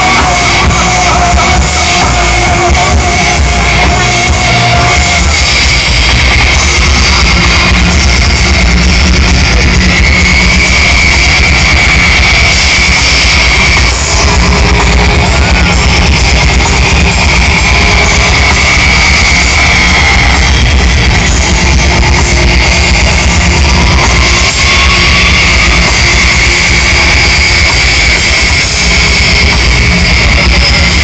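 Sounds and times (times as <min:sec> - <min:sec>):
live rock music: 0:00.0 - 0:31.0.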